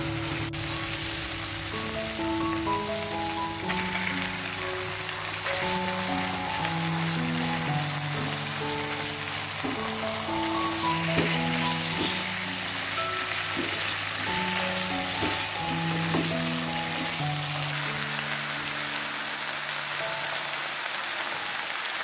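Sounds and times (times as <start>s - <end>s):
chicken sizzling in oil: 0.0s - 22.0s
spatula knocking against pan: 15.2s - 16.3s.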